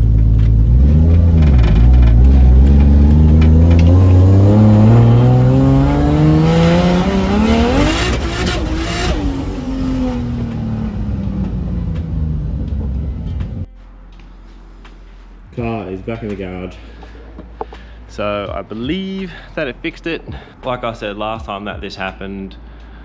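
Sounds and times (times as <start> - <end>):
car engine accelerating: 0.0 - 13.7.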